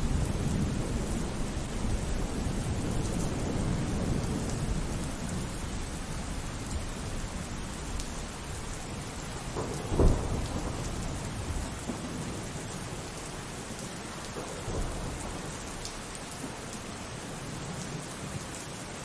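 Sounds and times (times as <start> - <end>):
thunder rumbling: 0.0 - 13.0
steady rainfall: 0.0 - 19.0.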